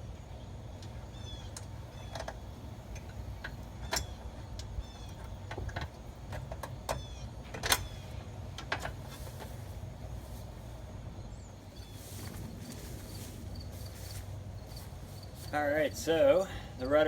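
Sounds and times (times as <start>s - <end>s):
small hardware clicking and knocking: 1.5s - 7.9s.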